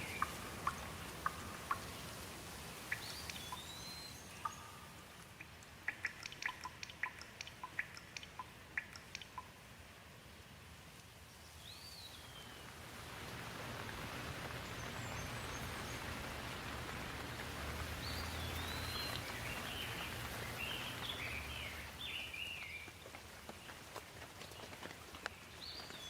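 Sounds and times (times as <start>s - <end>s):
bird chirping: 0.0s - 9.6s, 11.4s - 12.7s, 14.5s - 16.6s, 17.2s - 23.0s
steady rain falling: 0.0s - 26.0s
bird call: 2.9s - 5.1s, 18.0s - 22.9s.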